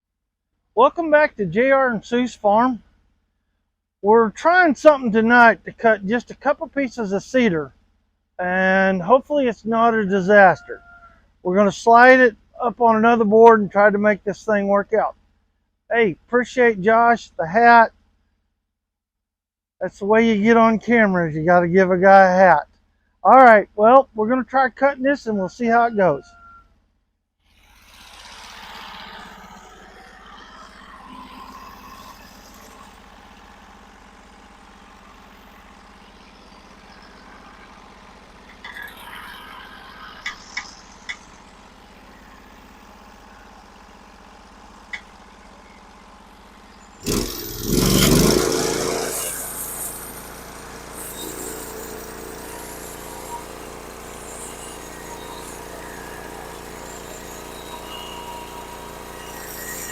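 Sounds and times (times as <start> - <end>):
bandsaw mill running: 27.5 - 59.9.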